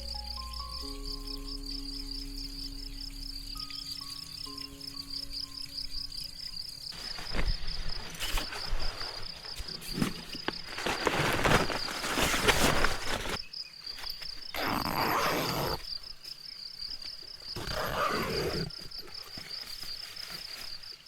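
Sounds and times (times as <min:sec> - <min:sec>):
crickets chirping: 0:00.0 - 0:21.0
rustling crackling noise: 0:06.8 - 0:15.8.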